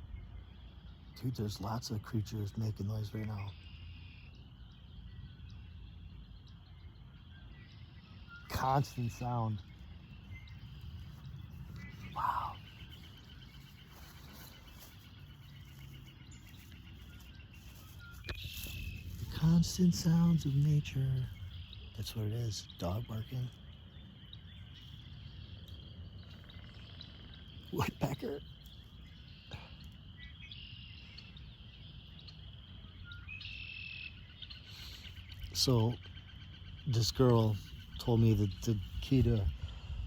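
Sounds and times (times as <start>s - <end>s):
insects chirping: 0.0s - 40.0s.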